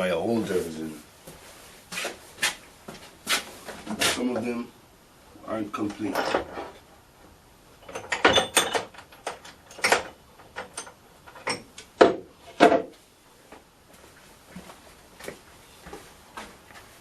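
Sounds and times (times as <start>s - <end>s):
metal tools clinking and knocking: 6.0s - 6.8s, 7.8s - 11.7s.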